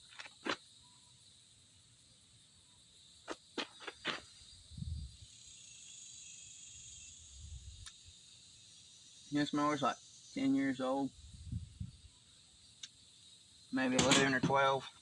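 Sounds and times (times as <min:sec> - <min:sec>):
insects chirring: 0:00.0 - 0:15.0
handling clicks and taps: 0:14.0 - 0:14.7.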